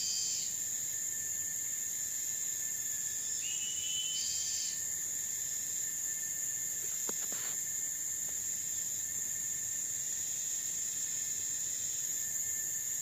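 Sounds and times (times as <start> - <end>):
thin whistle-like call: 0.0 - 0.5, 3.4 - 4.8
insects droning: 0.0 - 13.0.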